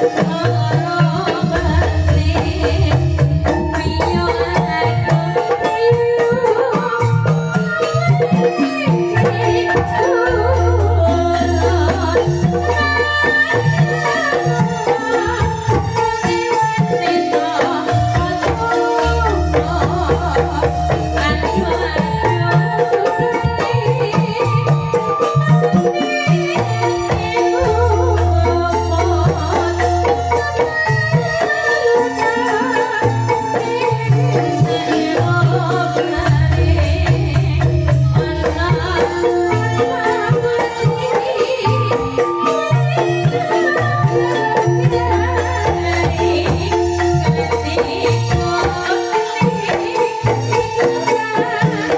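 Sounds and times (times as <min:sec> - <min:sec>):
bamboo xylophones playing melody: 0:00.0 - 0:51.9
hand drums: 0:00.0 - 0:51.9.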